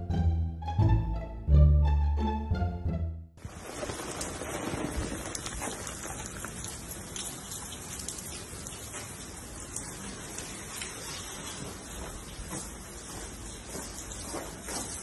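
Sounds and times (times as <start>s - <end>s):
steady rain falling: 3.4s - 15.0s.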